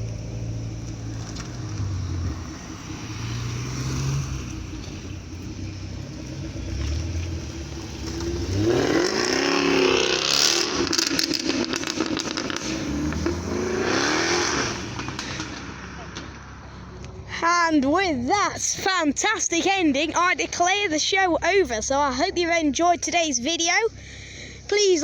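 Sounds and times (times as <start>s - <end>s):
car engine revving: 0.0s - 17.3s
exhaust sharp cracks: 7.9s - 17.2s.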